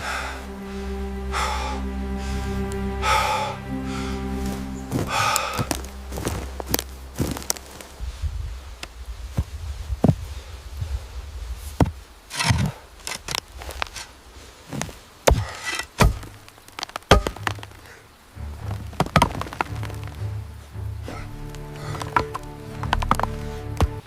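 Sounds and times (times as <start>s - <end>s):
low rumble: 0.0s - 13.8s
hand tools chopping wood: 11.8s - 13.4s, 15.3s - 17.8s, 19.0s - 20.0s, 21.8s - 24.0s.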